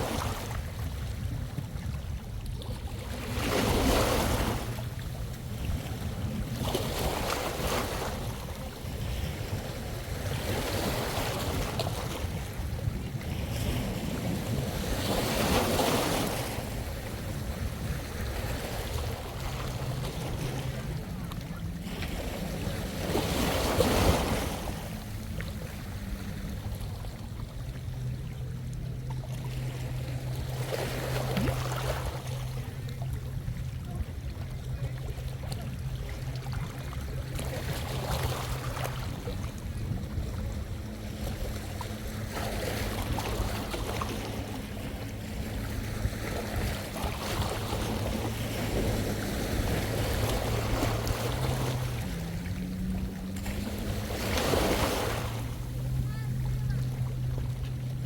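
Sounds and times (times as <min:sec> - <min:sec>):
small sea waves washing ashore: 0:00.0 - 0:58.0
steady low drone: 0:08.1 - 0:58.0.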